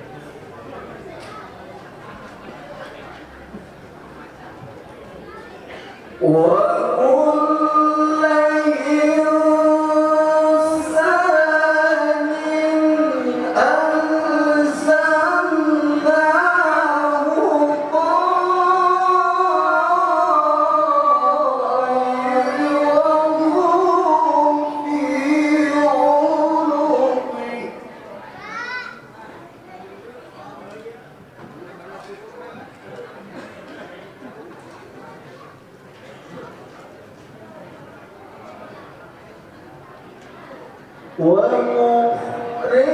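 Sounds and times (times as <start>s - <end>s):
person reciting in melodic chant: 6.0s - 28.9s, 40.9s - 42.9s.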